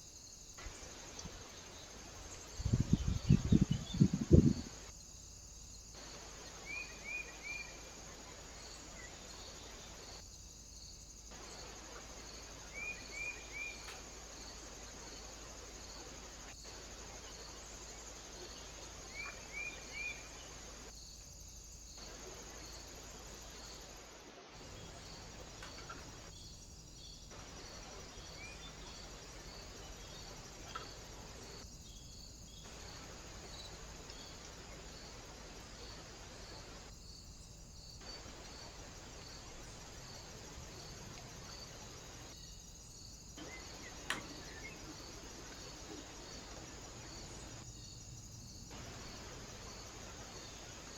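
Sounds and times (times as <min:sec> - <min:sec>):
faint hiss: 0:00.0 - 0:50.9
insect chirping: 0:00.0 - 0:50.9.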